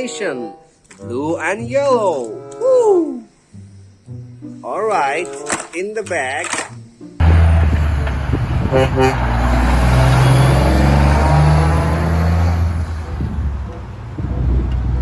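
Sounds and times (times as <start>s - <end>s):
truck engine rumbling: 4.7s - 15.0s.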